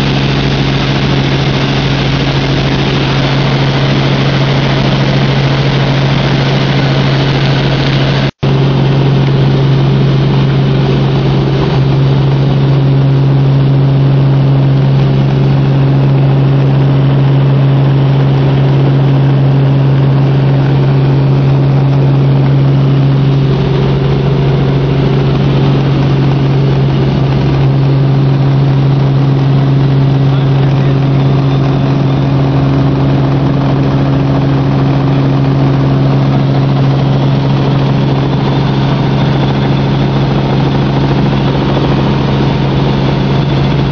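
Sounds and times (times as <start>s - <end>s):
helicopter engine and rotor noise: 0.0s - 43.9s.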